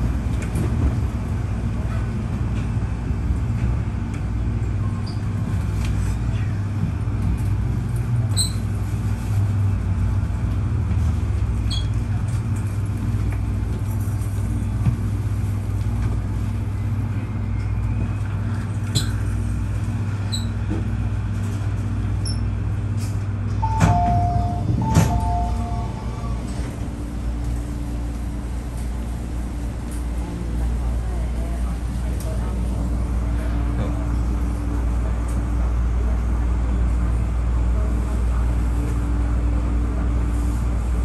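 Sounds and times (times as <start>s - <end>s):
train electrical hum: 0.0s - 41.0s
two-tone door chime: 23.6s - 26.2s.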